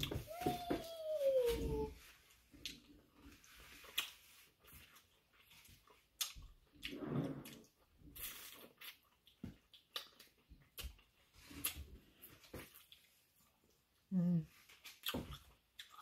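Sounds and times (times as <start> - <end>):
wet chewing smacks and clicks: 3.8 - 6.9, 7.5 - 11.9, 14.8 - 16.0.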